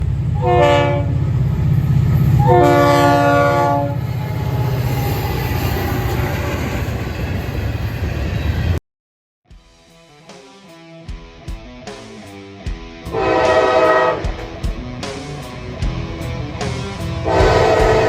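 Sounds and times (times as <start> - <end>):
train rumbling: 0.0 - 8.8, 13.1 - 18.0
locomotive air horn blasts: 0.4 - 1.2, 2.4 - 4.5, 13.1 - 14.4, 17.2 - 18.0.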